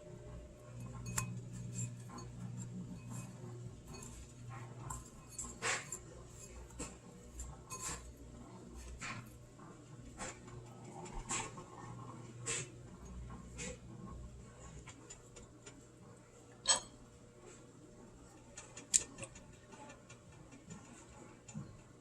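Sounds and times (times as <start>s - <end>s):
steady low hum: 0.0s - 22.0s
kitchen utensils and dishes clicking: 0.6s - 8.2s.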